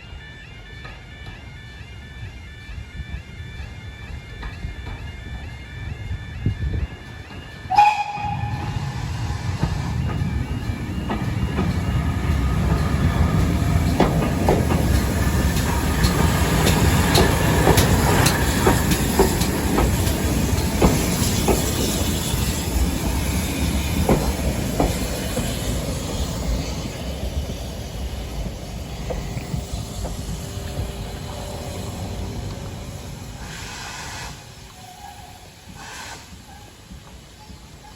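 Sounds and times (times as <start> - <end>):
train rumbling past: 0.0 - 37.9
wheels clicking over rail joints: 9.6 - 33.4.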